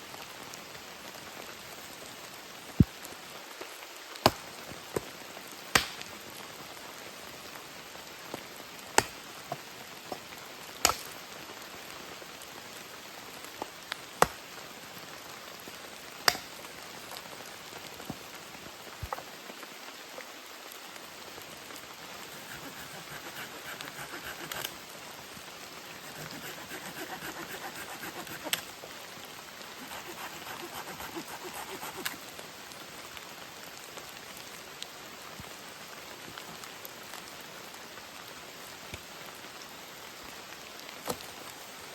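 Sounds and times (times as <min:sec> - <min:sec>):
loud single raindrops: 0:05.7 - 0:06.1, 0:16.2 - 0:16.7.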